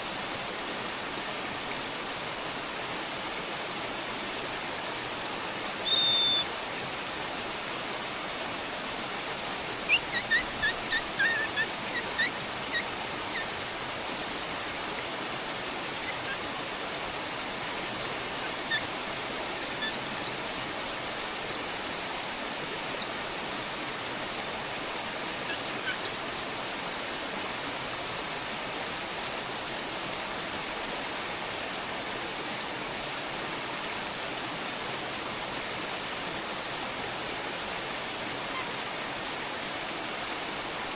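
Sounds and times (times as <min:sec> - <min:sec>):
small birds chirping: 0:05.8 - 0:06.5, 0:09.8 - 0:23.8, 0:25.2 - 0:26.6
steady rushing hiss: 0:08.3 - 0:30.8.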